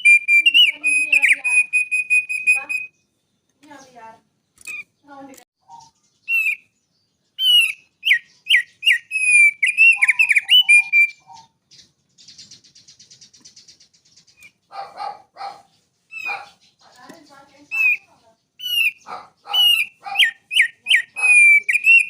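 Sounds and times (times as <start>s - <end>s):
bird buzzy trill: 0.0s - 3.0s, 7.4s - 14.6s, 17.3s - 22.0s
bird whistled song: 0.0s - 4.0s, 4.6s - 22.0s
harsh bird calls: 0.0s - 22.0s.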